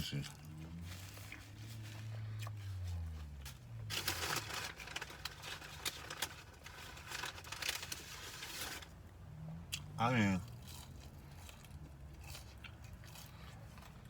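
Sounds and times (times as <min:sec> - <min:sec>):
chewing: 0:00.1 - 0:03.6, 0:09.7 - 0:14.0
sandwich rustling: 0:00.7 - 0:09.0.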